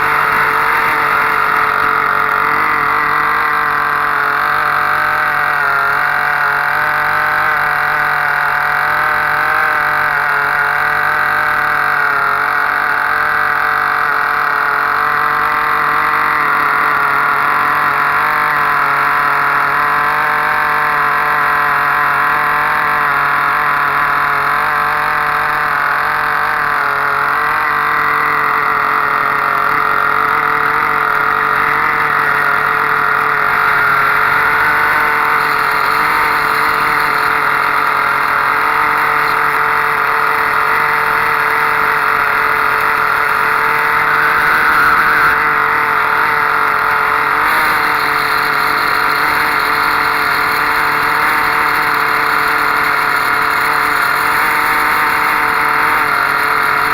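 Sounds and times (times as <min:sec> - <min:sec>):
model diesel engine running: 0:00.0 - 0:56.9.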